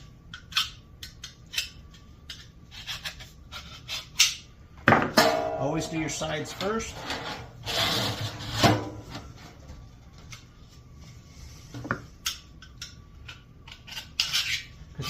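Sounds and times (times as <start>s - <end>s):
sheet metal clank: 4.9s - 6.1s, 7.0s - 9.4s
metal scraping on metal: 5.6s - 9.2s.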